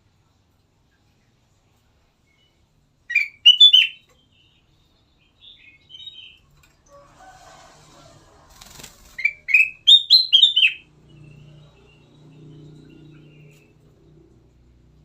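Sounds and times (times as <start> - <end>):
bird whistling notes: 3.1 - 4.0, 9.2 - 10.9
wings fluttering: 7.8 - 9.8.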